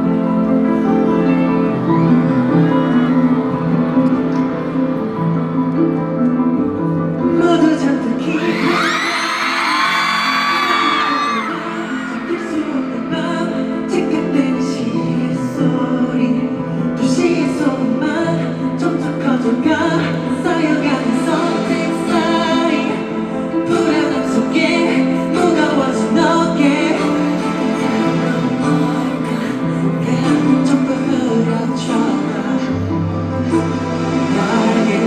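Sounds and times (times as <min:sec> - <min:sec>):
crowd screaming: 0:08.2 - 0:13.2
man singing with band: 0:10.7 - 0:16.3.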